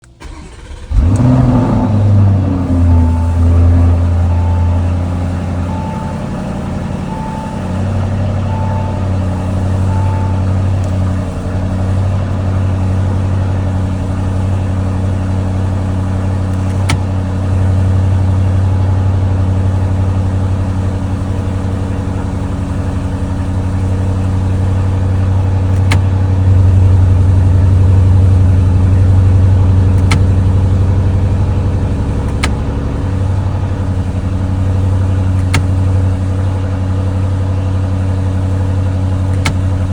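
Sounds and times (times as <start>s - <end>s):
car engine idling: 0.0s - 39.9s
short beeps: 1.9s - 11.4s.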